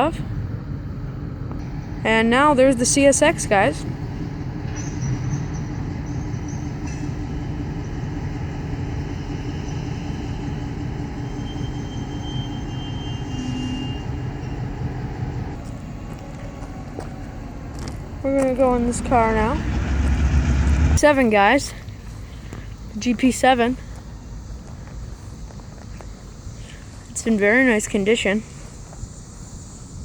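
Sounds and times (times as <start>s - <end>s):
train wheels rumbling on rail: 0.0s - 29.6s
high squealing tones: 4.4s - 21.0s.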